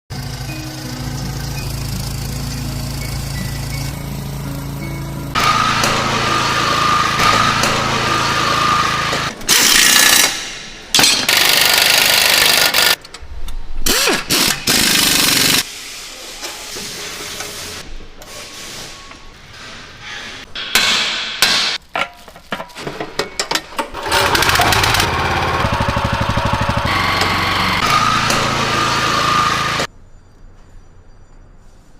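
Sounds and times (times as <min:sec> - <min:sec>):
small engines running: 0:00.1 - 0:10.3, 0:24.0 - 0:29.9
power tools: 0:00.1 - 0:13.0, 0:13.9 - 0:15.7, 0:24.0 - 0:29.9
hammering on metal: 0:20.6 - 0:21.8.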